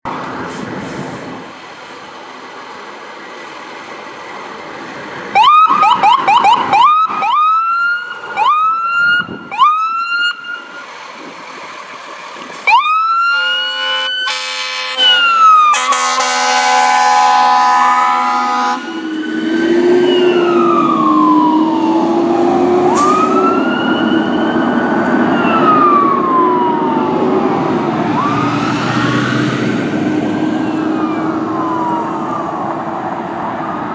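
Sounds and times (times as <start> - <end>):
fire truck siren: 5.3 - 11.0, 12.5 - 33.9
fire truck horn blast: 13.2 - 19.0.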